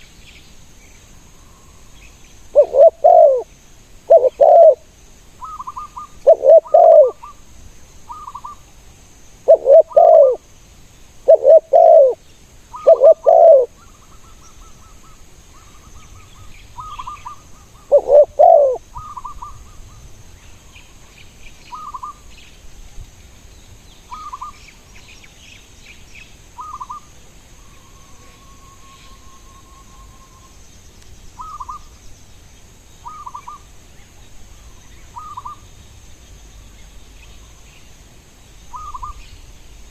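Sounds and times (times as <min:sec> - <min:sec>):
birds chirping: 0:00.0 - 0:03.5, 0:04.1 - 0:04.8, 0:05.4 - 0:07.4, 0:09.5 - 0:10.4, 0:11.2 - 0:22.6, 0:23.5 - 0:38.0, 0:38.6 - 0:39.9
dove cooing: 0:02.6 - 0:03.5, 0:04.1 - 0:07.3, 0:09.4 - 0:10.4, 0:11.3 - 0:12.2, 0:12.8 - 0:13.8, 0:16.8 - 0:19.6.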